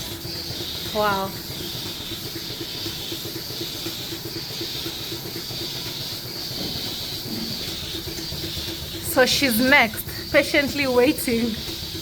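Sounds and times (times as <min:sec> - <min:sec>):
rapid regular ticking: 0:00.0 - 0:12.0
vacuum system hissing: 0:00.0 - 0:12.0.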